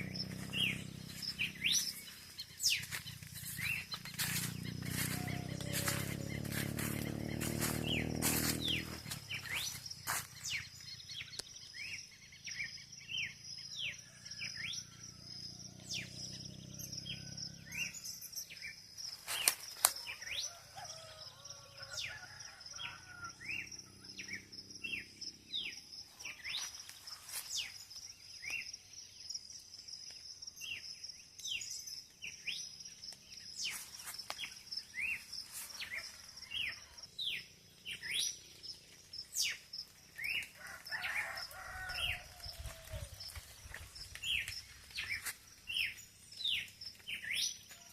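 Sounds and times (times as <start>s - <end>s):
birds chirping: 0.0s - 13.4s, 30.7s - 47.9s.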